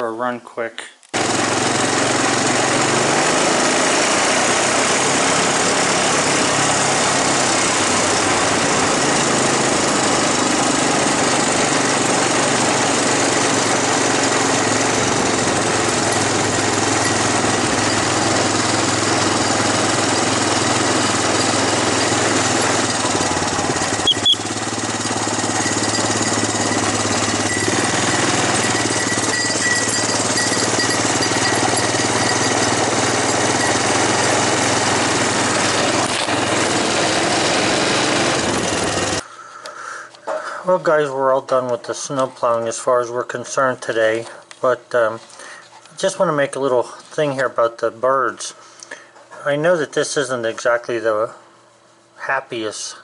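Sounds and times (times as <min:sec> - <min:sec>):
engine running steadily: 0:01.2 - 0:39.2.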